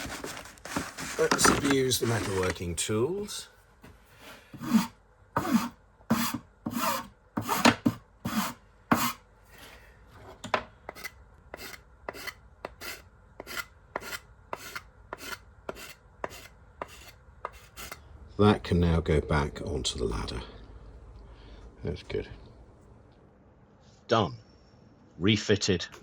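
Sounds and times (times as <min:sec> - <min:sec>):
hand file rasping on brass: 0:04.6 - 0:07.6, 0:08.3 - 0:09.2, 0:10.9 - 0:18.0.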